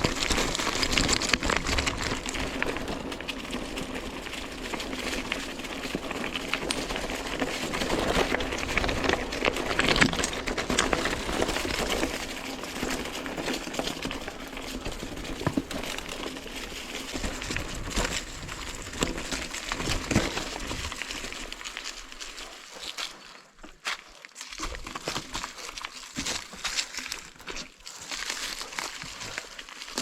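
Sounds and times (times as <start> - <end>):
bike tyres crunching on rock: 0.0 - 30.0.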